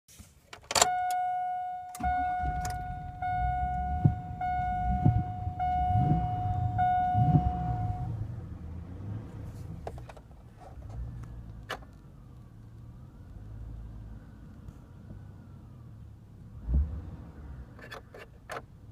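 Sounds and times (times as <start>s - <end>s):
electronic warning chime: 0.8s - 8.1s
truck engine rumble: 1.9s - 18.9s.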